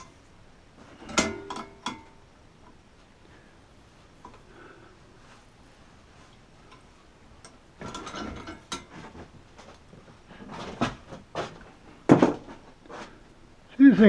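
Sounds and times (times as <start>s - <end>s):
metal tools rattling: 1.0s - 2.2s, 7.8s - 9.2s
metallic clicks and knocks: 1.0s - 2.2s.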